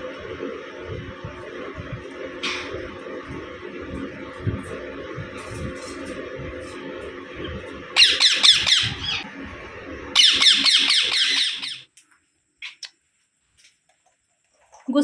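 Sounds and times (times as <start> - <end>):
low background hum: 0.0 - 15.0
parrot screeching: 8.0 - 9.2, 10.2 - 11.9.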